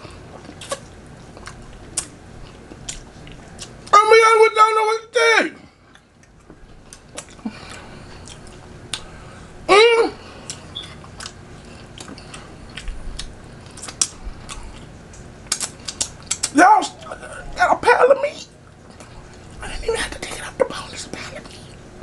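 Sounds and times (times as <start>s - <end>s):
chewing with wet mouth clicks: 0.3s - 3.9s, 5.9s - 9.1s, 10.4s - 16.6s.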